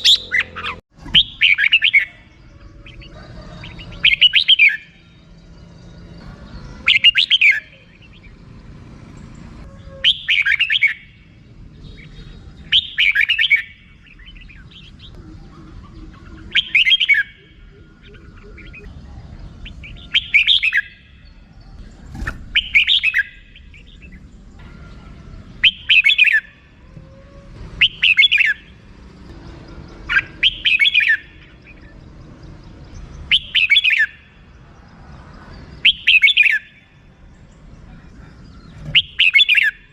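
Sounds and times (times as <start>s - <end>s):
bird chattering call: 0.0s - 5.0s, 9.6s - 11.2s, 11.9s - 19.0s, 22.3s - 26.6s, 27.8s - 28.7s, 37.9s - 39.9s.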